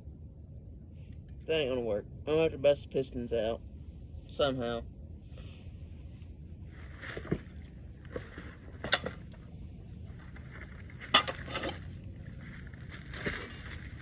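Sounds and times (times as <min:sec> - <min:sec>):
metal tools clinking: 0:08.8 - 0:09.2, 0:11.0 - 0:11.9.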